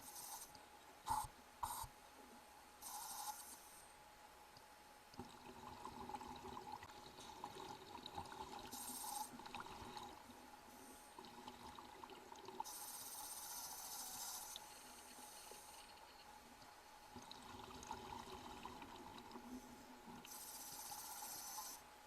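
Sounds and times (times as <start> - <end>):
water trickling and pouring: 5.2 - 10.2, 11.2 - 12.6.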